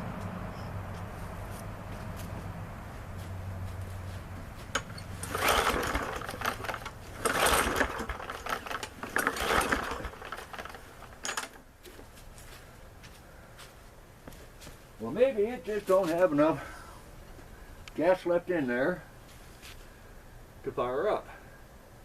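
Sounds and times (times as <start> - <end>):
engine cranking over: 4.7 - 11.6
recoil starter pull: 4.7 - 11.6.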